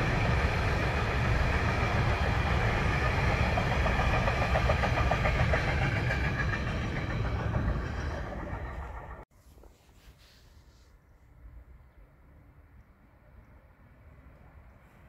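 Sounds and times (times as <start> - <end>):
freight train rattling past: 0.0 - 9.2.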